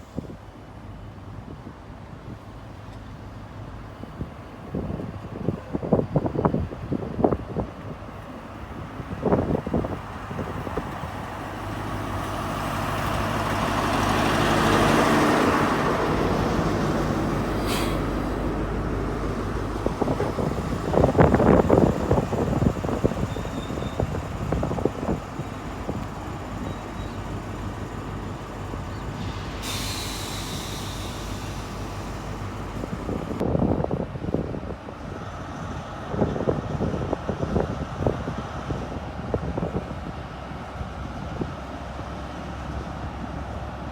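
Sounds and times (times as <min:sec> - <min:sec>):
diesel engine running: 0:08.6 - 0:33.8
hiss: 0:17.5 - 0:18.4, 0:28.6 - 0:33.3.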